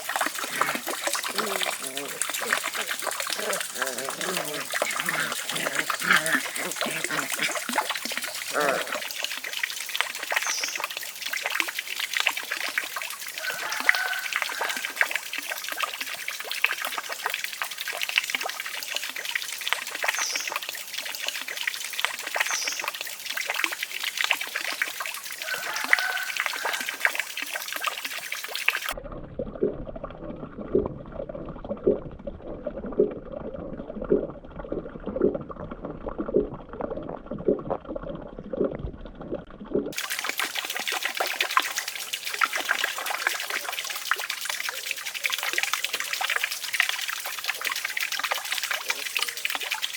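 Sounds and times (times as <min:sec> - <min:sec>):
water trickling and splashing: 0:00.0 - 0:29.1, 0:36.2 - 0:49.9.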